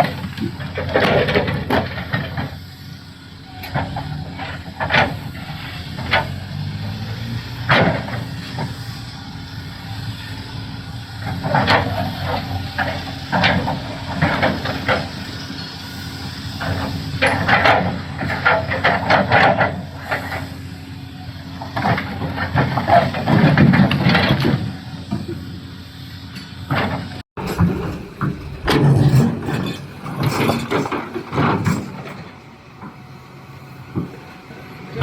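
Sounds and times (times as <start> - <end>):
diesel engine under load: 0.0 - 35.0.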